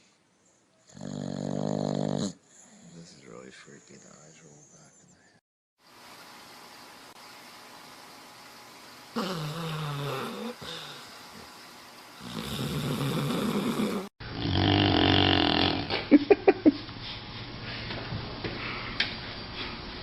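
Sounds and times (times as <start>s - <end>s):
dogs snoring: 0.4s - 4.4s, 9.1s - 11.1s, 12.2s - 16.0s.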